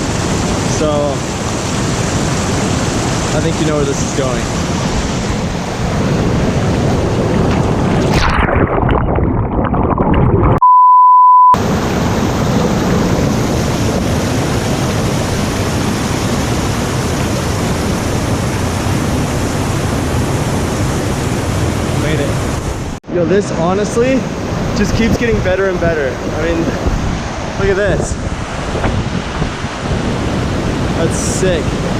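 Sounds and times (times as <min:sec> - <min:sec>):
rushing stream water: 0:00.0 - 0:08.7, 0:11.6 - 0:31.9
steady beep tone: 0:10.6 - 0:11.6.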